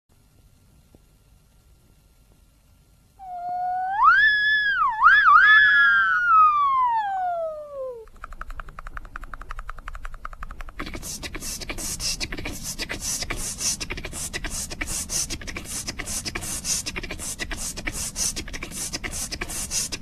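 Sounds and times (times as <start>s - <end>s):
breathy percussive mouth sounds: 8.0s - 20.0s
buzzing vocal trill: 10.5s - 20.0s.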